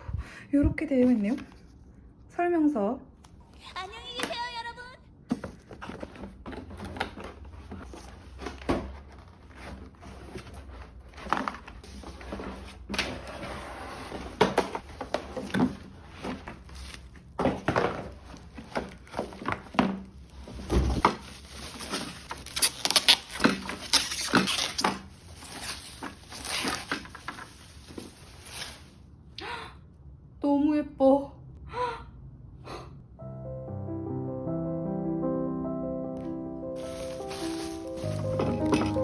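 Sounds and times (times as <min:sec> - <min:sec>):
knocks and thumps of handling: 0:05.2 - 0:13.2, 0:14.2 - 0:22.5, 0:36.8 - 0:39.0
packaging rustling: 0:05.3 - 0:29.0, 0:36.8 - 0:39.0.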